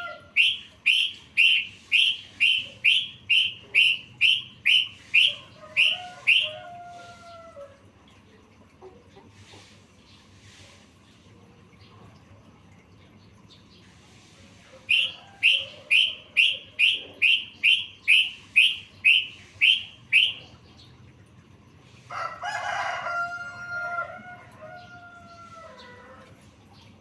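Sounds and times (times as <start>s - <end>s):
bird chirping: 0.3s - 6.6s, 14.9s - 21.0s
rooster crowing: 5.2s - 7.8s, 15.0s - 16.2s, 22.1s - 26.4s.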